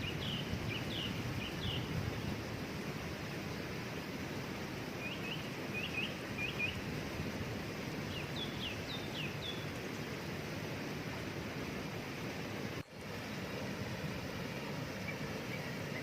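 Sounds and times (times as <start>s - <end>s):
songbird chirping: 0.0s - 2.4s, 4.2s - 6.9s, 7.9s - 10.3s, 13.1s - 16.0s
waterfall rushing: 0.0s - 16.0s.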